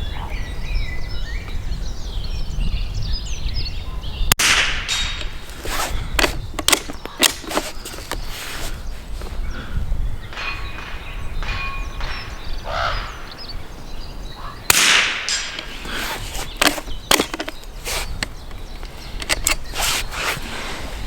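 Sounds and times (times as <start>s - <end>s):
rifle shot: 4.4s - 5.4s, 14.7s - 15.8s
rifle bolt clicks and clacks: 4.4s - 8.2s, 14.7s - 20.4s.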